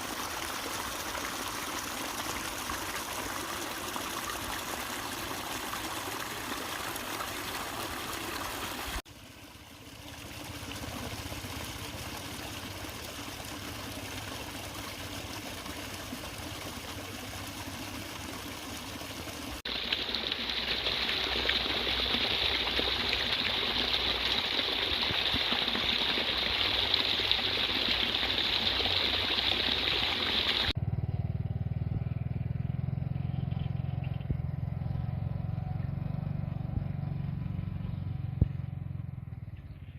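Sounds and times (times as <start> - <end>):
floodwater rushing over road: 0.0 - 30.8.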